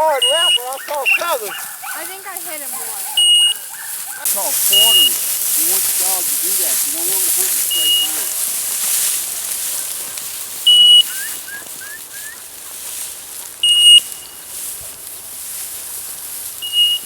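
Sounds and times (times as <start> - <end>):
high-pitched collar beeps: 0.0 - 2.1, 3.0 - 5.2, 7.6 - 8.3, 10.7 - 11.3, 13.6 - 14.4.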